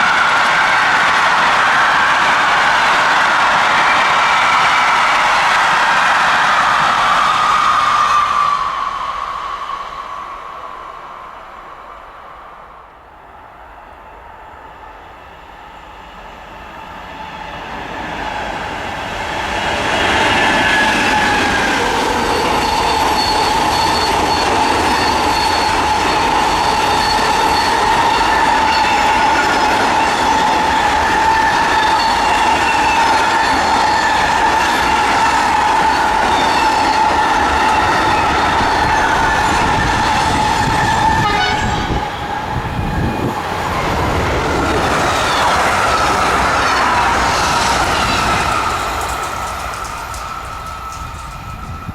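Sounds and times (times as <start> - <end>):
high-pitched train squeal: 0.0 - 51.9
train wheels rumbling: 14.7 - 51.9.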